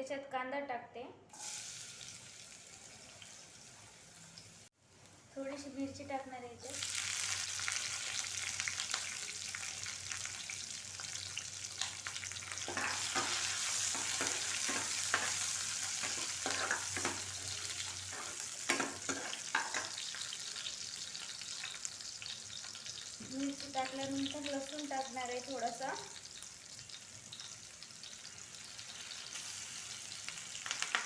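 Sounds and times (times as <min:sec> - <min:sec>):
onion sizzling in hot oil: 0:01.3 - 0:31.0
spatula scraping pan: 0:12.6 - 0:20.1.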